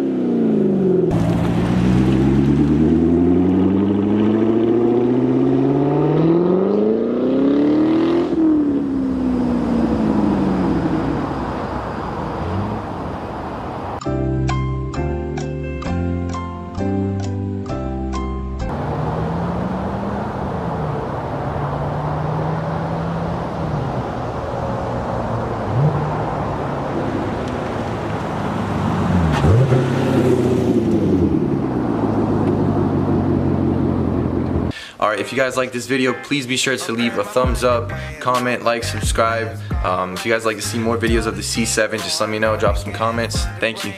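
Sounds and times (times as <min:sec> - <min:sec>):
car engine revving: 0:00.0 - 0:14.0, 0:18.7 - 0:34.7
music: 0:14.0 - 0:18.7, 0:35.3 - 0:43.9.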